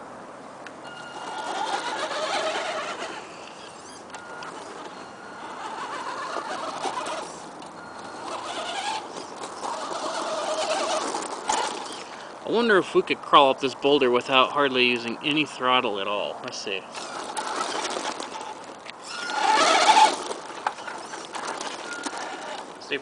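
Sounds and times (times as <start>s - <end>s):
toy truck motor whining: 0.8s - 12.4s, 16.9s - 23.0s.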